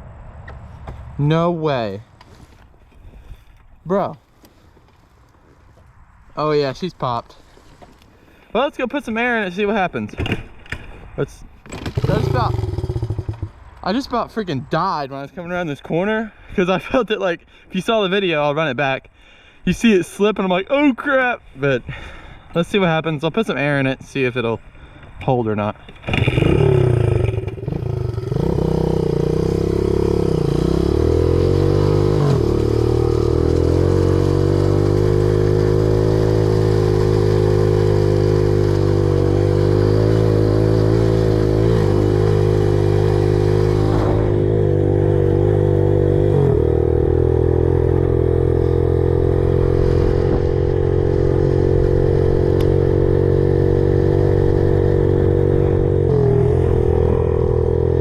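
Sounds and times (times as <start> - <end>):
pit bike engine running: 11.8 - 13.6, 26.2 - 58.0.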